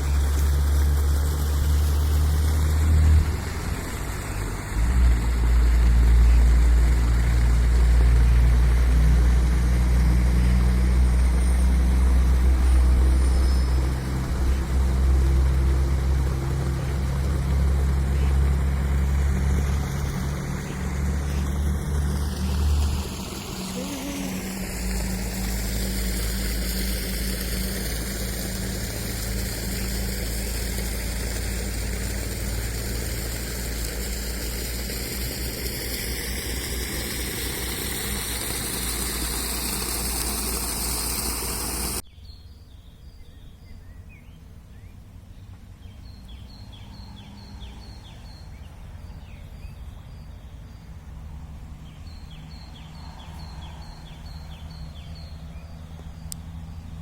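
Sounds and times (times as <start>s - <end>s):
bird chirping: 12.6s - 15.0s.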